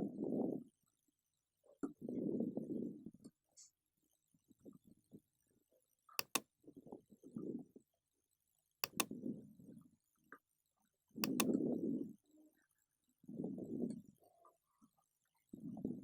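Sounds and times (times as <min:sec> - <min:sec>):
computer mouse clicking: 0:06.2 - 0:06.4, 0:08.8 - 0:09.1, 0:11.2 - 0:11.5.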